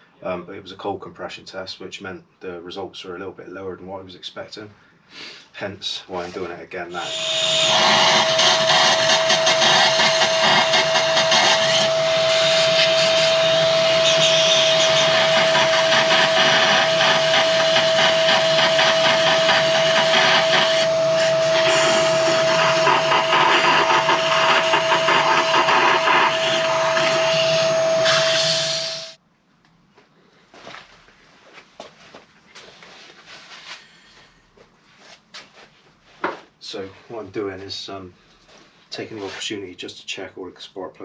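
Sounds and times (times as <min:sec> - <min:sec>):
machine motor whining: 0:06.9 - 0:29.2.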